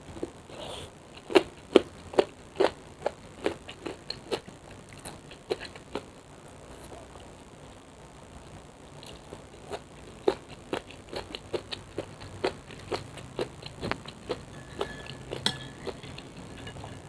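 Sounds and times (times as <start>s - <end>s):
crunchy chewing: 0.0s - 6.2s, 9.0s - 17.0s.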